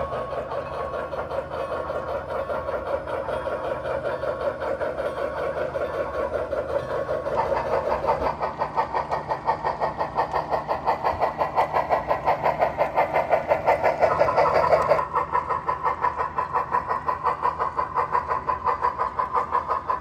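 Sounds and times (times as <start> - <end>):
model locomotive running: 0.0 - 20.0.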